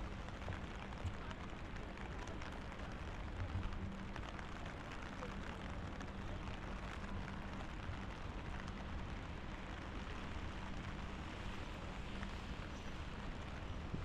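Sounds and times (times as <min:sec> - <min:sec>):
rain falling on a street: 0:00.0 - 0:14.0.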